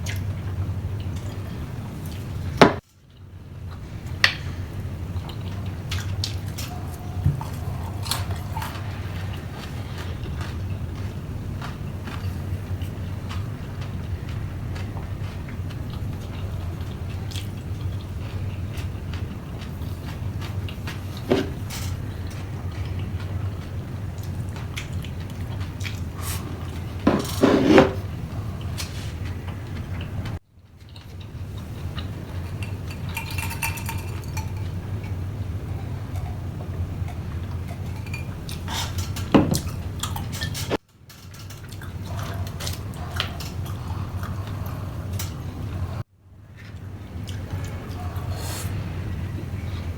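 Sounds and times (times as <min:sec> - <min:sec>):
steady low hum: 0:00.0 - 0:49.9
person chewing food: 0:03.1 - 0:27.0, 0:28.3 - 0:40.8, 0:41.5 - 0:49.8
utensils clinking against a dish: 0:30.8 - 0:35.2, 0:37.0 - 0:45.8.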